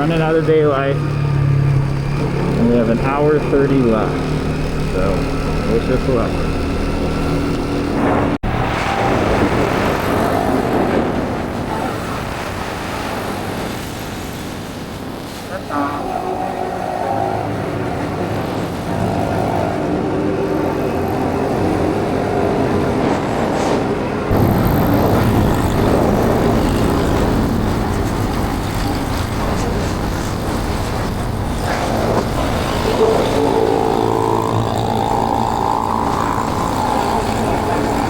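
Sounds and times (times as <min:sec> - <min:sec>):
motorbike engine running: 0:00.0 - 0:08.4, 0:24.3 - 0:38.0
wind noise on microphone: 0:07.4 - 0:15.6, 0:21.2 - 0:38.0.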